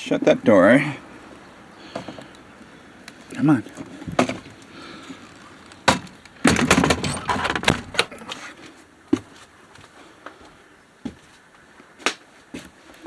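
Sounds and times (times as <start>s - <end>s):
door knocking and rattling in frame: 5.8s - 8.0s.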